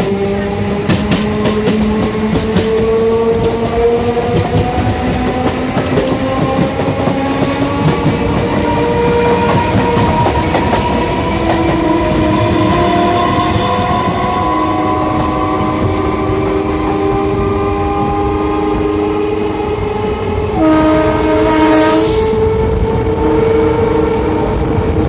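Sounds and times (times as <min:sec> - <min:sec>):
train wheels clattering over rail joints: 0:00.0 - 0:16.0.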